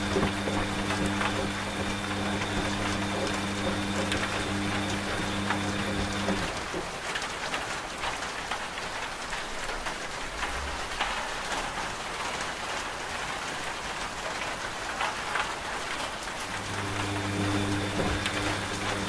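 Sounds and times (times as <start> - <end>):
washing machine motor hum: 0.0 - 7.0, 16.4 - 19.0
steady rain: 0.0 - 19.0.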